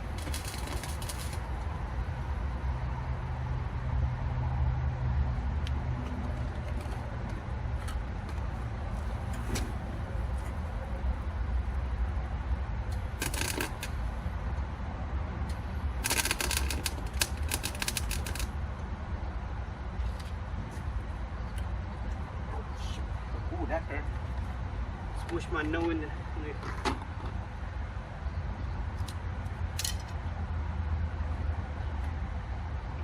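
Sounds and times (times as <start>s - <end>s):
welding arc crackling: 0.0s - 1.5s, 13.0s - 14.0s, 16.0s - 18.5s.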